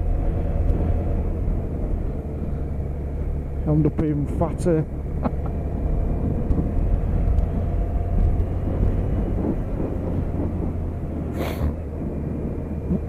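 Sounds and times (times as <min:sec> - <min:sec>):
low wind rumble: 0:00.0 - 0:13.0
motorcycle engine cruising: 0:00.0 - 0:13.0
person sniffing: 0:11.3 - 0:11.8.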